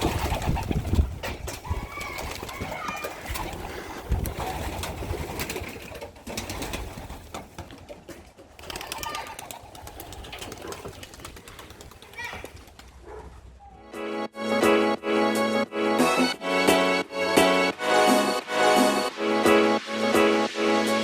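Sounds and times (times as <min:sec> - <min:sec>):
pigeons cooing: 0:00.0 - 0:07.3, 0:08.6 - 0:12.0.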